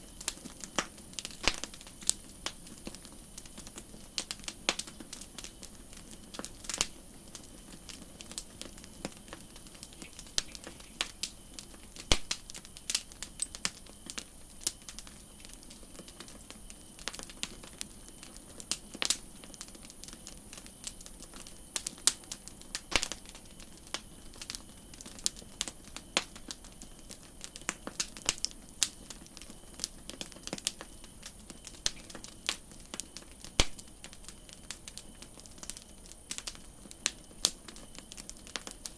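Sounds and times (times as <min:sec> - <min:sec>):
campfire crackling: 0:00.0 - 0:38.9.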